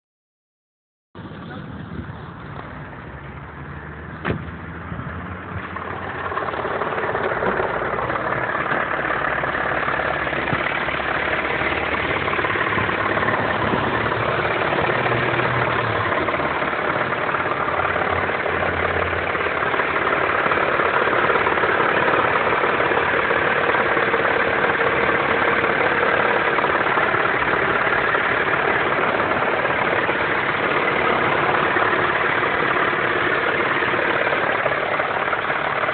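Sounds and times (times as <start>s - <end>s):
car engine idling with knock: 4.2s - 35.9s.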